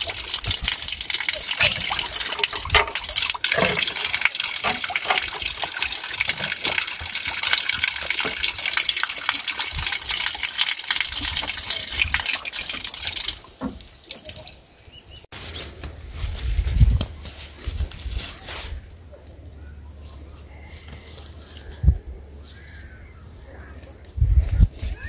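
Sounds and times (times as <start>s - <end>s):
water gushing and splashing: 0.0s - 14.8s.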